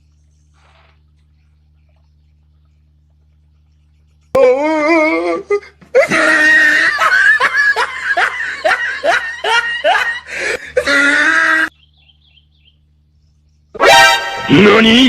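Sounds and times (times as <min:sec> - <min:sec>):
person laughing loudly: 0:04.4 - 0:11.7.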